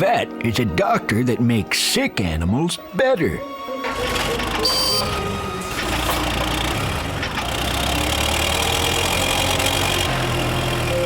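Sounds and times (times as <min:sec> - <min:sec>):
cartoon car engine: 0:03.8 - 0:11.0.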